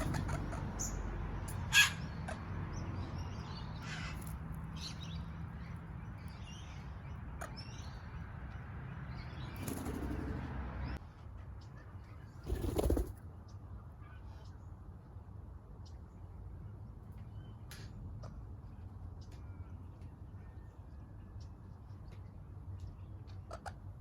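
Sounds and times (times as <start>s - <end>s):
birds twittering: 0.0s - 11.0s, 11.7s - 13.1s.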